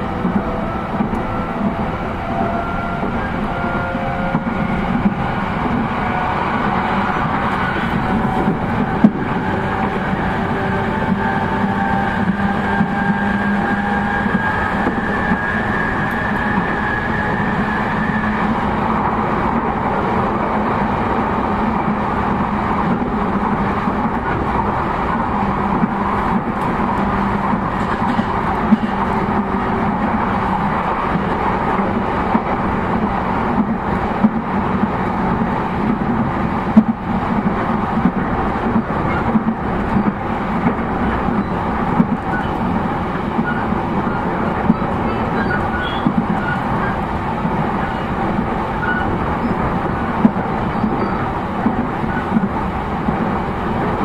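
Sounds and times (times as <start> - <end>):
rail clicks: 0.0 - 54.0
train rolling and motor noise: 0.0 - 54.0.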